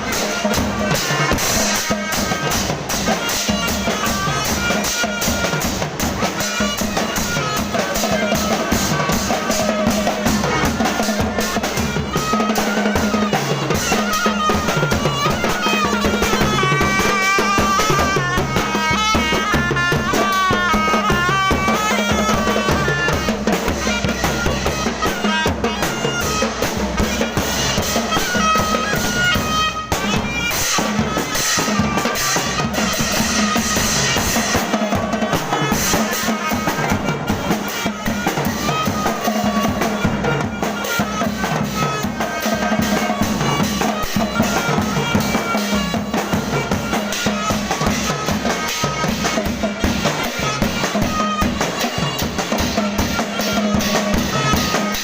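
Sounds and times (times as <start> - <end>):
drums beating: 0.0 - 55.0.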